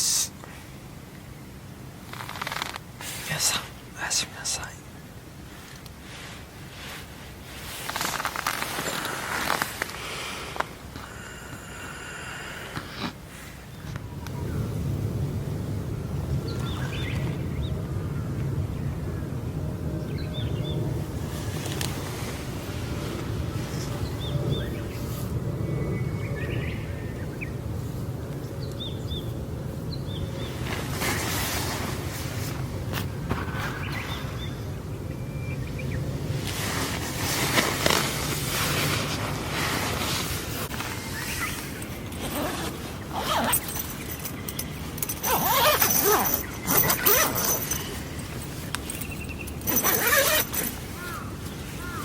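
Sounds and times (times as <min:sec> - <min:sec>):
low outdoor rumble: 0:00.0 - 0:52.0
zipper rasping: 0:02.1 - 0:02.8, 0:07.7 - 0:09.9, 0:36.9 - 0:51.2
small birds chirping: 0:16.3 - 0:17.8, 0:40.8 - 0:52.0.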